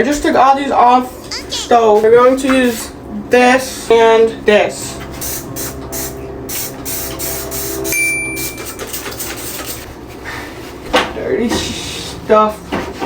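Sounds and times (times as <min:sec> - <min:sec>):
scrubbing a stovetop: 0:02.6 - 0:07.9, 0:08.8 - 0:10.9.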